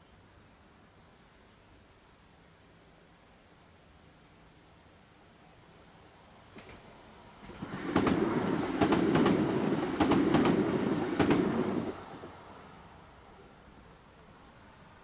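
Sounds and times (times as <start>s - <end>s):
train rumble: 6.2s - 15.0s
train wheels clacking over rail joints: 7.4s - 12.0s.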